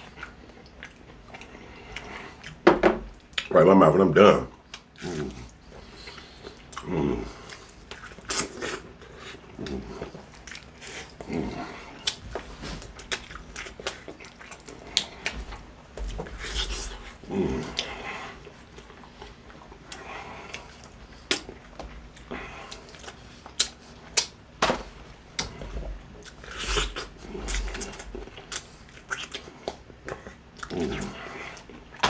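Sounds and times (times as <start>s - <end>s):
crunchy chewing of fried chicken: 0.0s - 3.5s, 4.5s - 32.0s.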